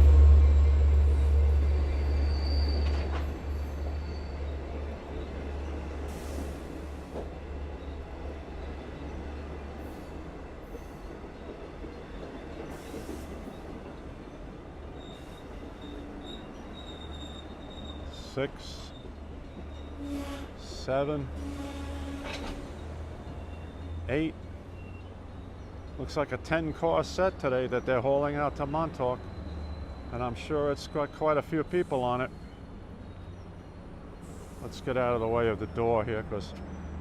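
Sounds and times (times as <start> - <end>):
diesel locomotive engine rumble: 0.0 - 37.0
train coaches rolling by: 0.0 - 37.0
high-pitched brake squeals: 0.4 - 4.6, 15.0 - 18.2, 18.8 - 20.6, 21.4 - 25.8, 28.6 - 34.7.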